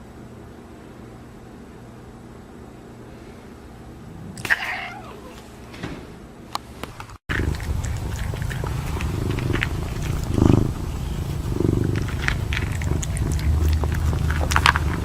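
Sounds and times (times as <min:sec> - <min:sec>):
cat purring: 0:03.9 - 0:05.5, 0:07.3 - 0:15.0.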